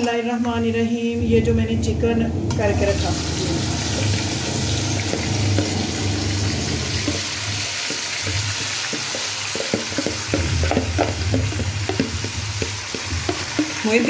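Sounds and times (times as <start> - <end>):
chicken sizzling in hot oil: 3.0 - 14.0
spoon knocking bowl and pan: 3.9 - 14.0.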